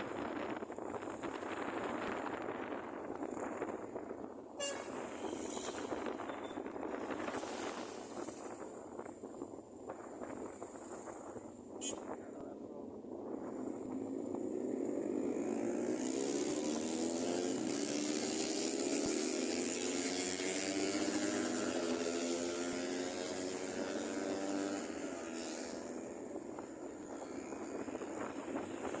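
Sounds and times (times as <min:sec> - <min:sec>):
motor engine passing by: 0:04.8 - 0:08.7, 0:14.0 - 0:29.0.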